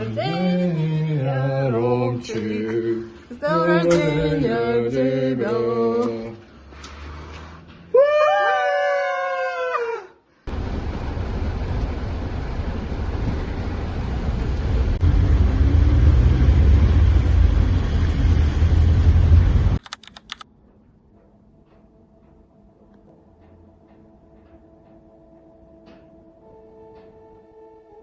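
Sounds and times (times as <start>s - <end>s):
noisy low rumble: 10.5s - 19.8s.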